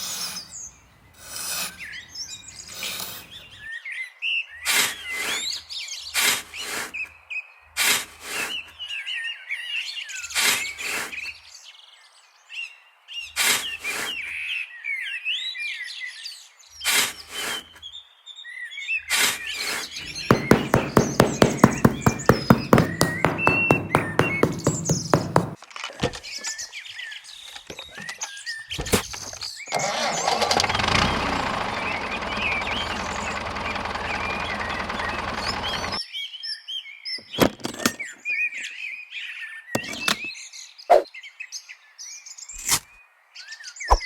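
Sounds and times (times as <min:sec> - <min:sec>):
small birds chirping: 0:00.0 - 0:14.8, 0:15.8 - 0:36.1
sharp knocks: 0:20.0 - 0:26.2, 0:31.8 - 0:36.0.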